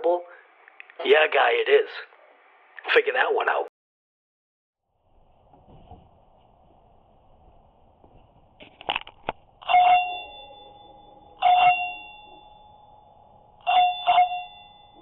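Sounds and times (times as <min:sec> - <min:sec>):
bell-like chime strikes: 0:09.7 - 0:13.0.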